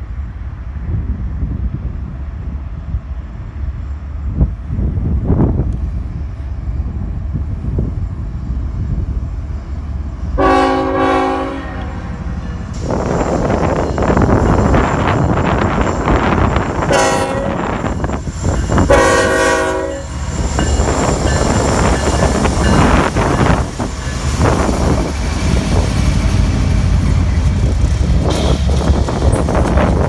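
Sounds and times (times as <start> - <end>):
locomotives rumbling past: 8.1 - 30.0
locomotive air horn blasts: 10.4 - 12.2, 16.8 - 17.9, 18.8 - 20.1.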